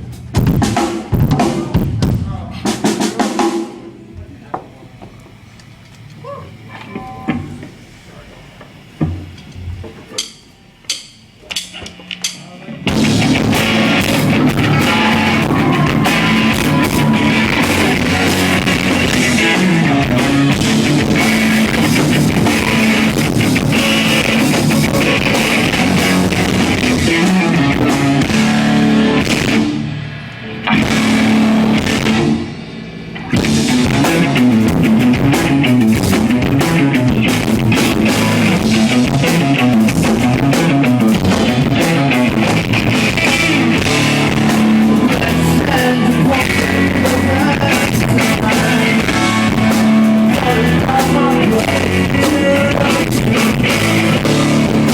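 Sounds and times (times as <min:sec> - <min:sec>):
live rock band playing: 0:12.8 - 0:54.9.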